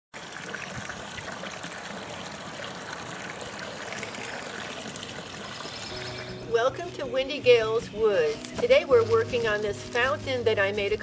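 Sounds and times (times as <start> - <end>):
fountain water trickling: 0.2 - 7.6.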